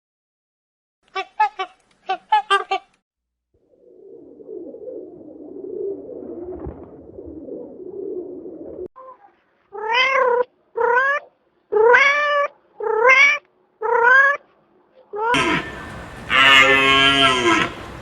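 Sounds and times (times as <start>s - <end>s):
low rough murmur: 15.4s - 18.0s.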